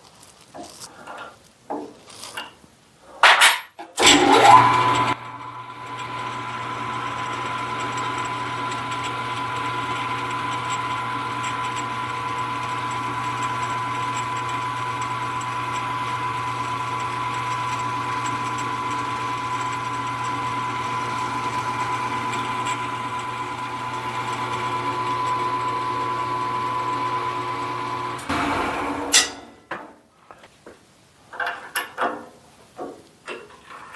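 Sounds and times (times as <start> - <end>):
benchtop machine tool whining: 4.0 - 29.5.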